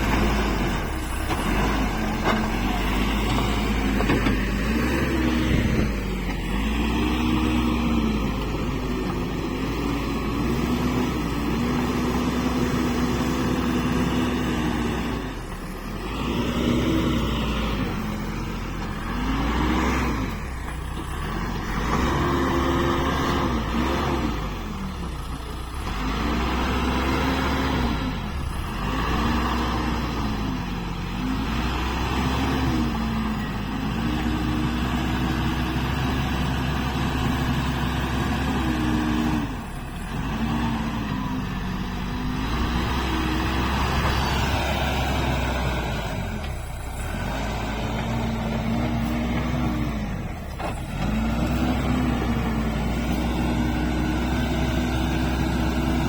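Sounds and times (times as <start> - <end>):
diesel engine working under load: 0.0 - 56.0.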